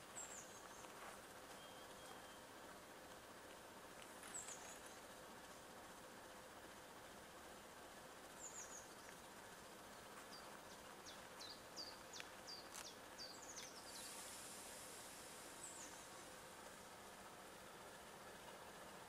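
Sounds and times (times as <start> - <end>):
faint steady hum: 0.0 - 19.0
small bird chirping: 0.2 - 2.5, 4.2 - 5.1, 8.4 - 14.4.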